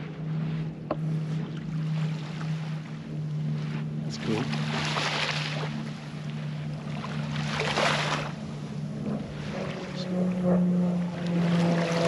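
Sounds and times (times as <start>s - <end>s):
steady low hum: 0.0s - 12.0s
small waves washing onto sand: 3.5s - 5.9s.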